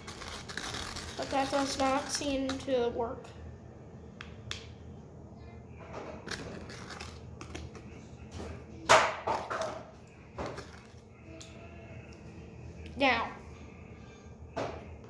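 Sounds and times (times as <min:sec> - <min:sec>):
stick scraping a bowl: 0:00.0 - 0:02.9, 0:06.3 - 0:07.9.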